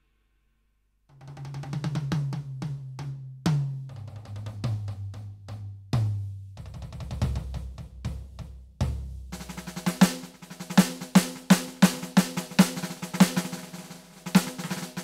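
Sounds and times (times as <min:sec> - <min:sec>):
electronic drum kit: 0:03.5 - 0:15.0
quick tom strokes: 0:06.0 - 0:15.0.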